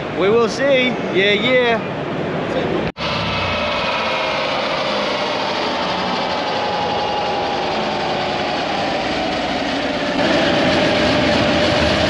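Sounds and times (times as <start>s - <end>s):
engine running: 2.8s - 12.0s.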